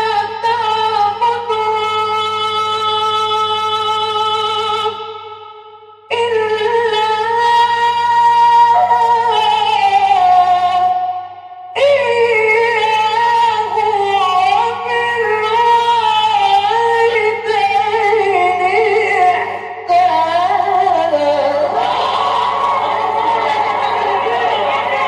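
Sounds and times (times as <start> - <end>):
man chanting recitation: 6.1 - 11.0, 11.8 - 21.7
listeners' voices: 21.7 - 25.0.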